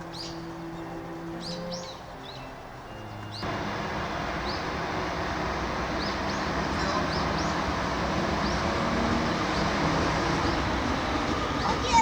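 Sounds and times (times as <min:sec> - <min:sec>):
small birds chirping: 0:00.0 - 0:12.0
loud outdoor rumble: 0:03.4 - 0:12.0.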